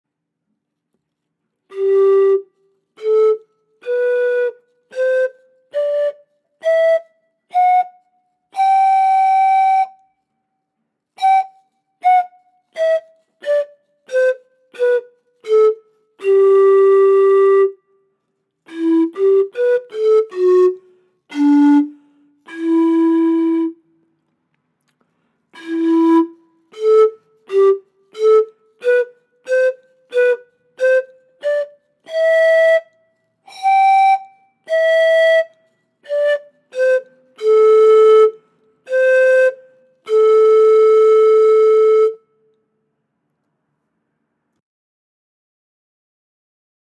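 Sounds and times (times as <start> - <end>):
panpipe playing breathy notes: 18.7 - 23.8, 25.6 - 32.8, 33.5 - 42.2.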